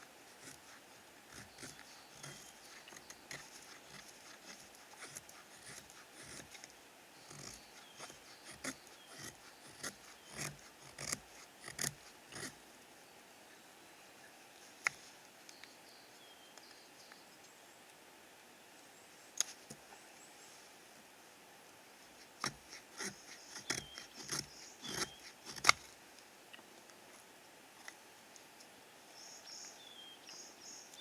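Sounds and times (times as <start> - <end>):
short scraping sounds: 22.2 - 25.9.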